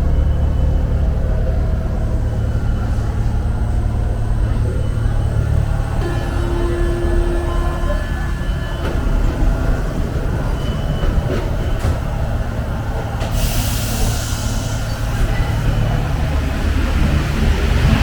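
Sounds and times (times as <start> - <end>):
metro train rumbling: 0.0 - 18.0.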